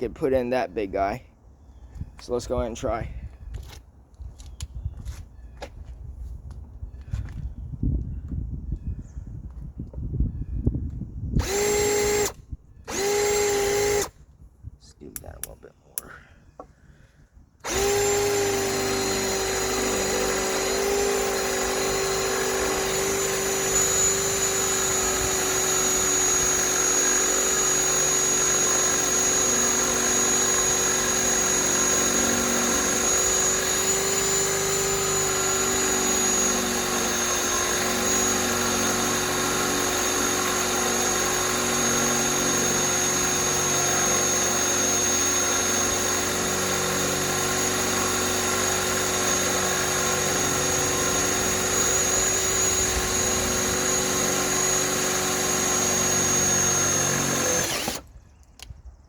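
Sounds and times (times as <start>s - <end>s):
hammer drill motor whine: 11.4s - 14.2s, 17.6s - 58.2s.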